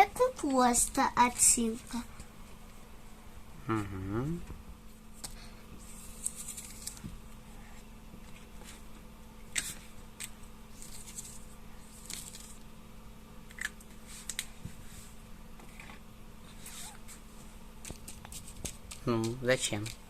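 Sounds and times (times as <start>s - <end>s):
faint steady hum: 0.0s - 20.0s
paper rustling: 5.9s - 7.1s, 10.8s - 12.6s.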